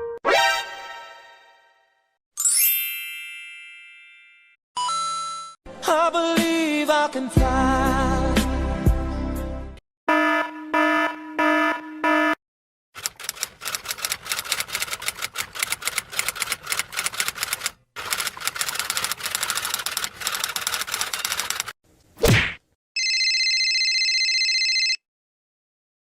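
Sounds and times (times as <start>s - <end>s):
typewriter-like key clicks: 13.0s - 21.7s.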